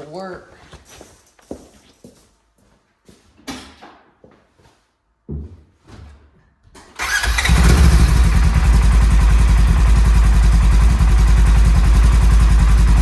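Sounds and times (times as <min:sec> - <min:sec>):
engine starting and idling: 0:06.8 - 0:13.0.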